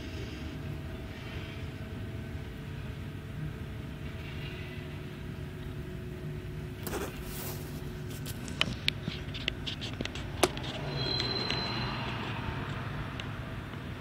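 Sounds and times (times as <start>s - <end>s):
high wheel squeal: 10.6s - 12.7s.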